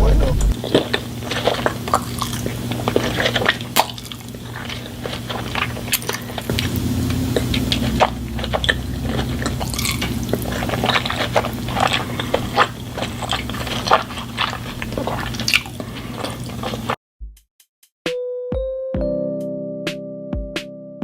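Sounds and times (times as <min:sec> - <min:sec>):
steady low hum: 0:00.0 - 0:17.0
person chewing wet food: 0:00.5 - 0:17.0.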